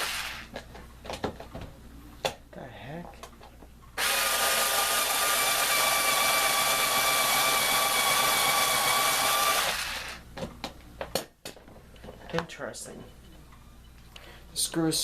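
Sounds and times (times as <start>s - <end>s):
electric screwdriver whirring: 0.0s - 0.5s, 4.0s - 10.2s.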